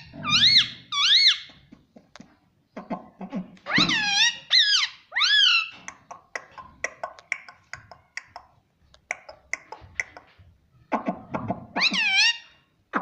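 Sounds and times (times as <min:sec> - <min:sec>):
parakeet squawking: 0:00.0 - 0:01.5, 0:03.7 - 0:05.8, 0:11.7 - 0:12.6
parakeet clicks and chirps: 0:05.7 - 0:10.3.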